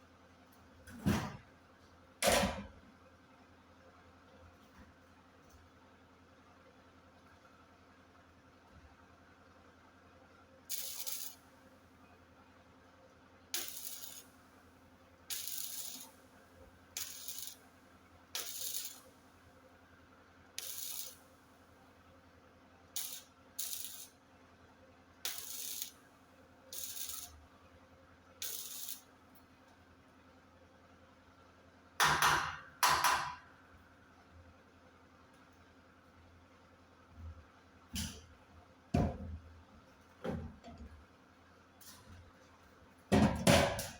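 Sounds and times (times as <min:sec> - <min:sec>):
welder crackling bursts: 0:10.7 - 0:11.4, 0:13.6 - 0:14.3, 0:15.3 - 0:16.2, 0:17.0 - 0:17.6, 0:18.4 - 0:19.1, 0:20.6 - 0:21.2, 0:23.0 - 0:24.2, 0:25.3 - 0:26.0, 0:26.7 - 0:27.4, 0:28.4 - 0:29.0.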